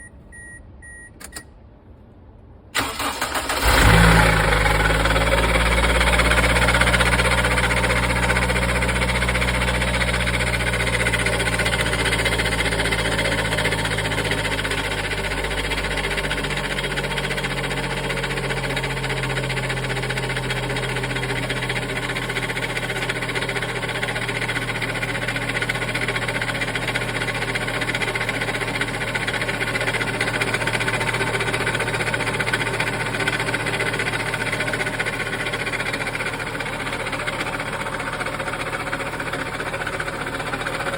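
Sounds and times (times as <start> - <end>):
short electronic beeps: 0.0 - 1.5
engine starter cranking: 2.8 - 4.9
abnormal engine noise: 2.8 - 40.9
engine idling: 2.8 - 40.9.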